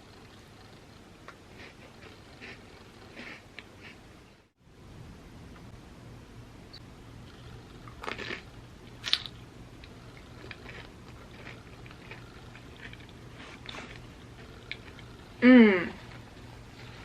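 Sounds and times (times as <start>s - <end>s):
crunching and chewing chips: 7.8s - 15.3s.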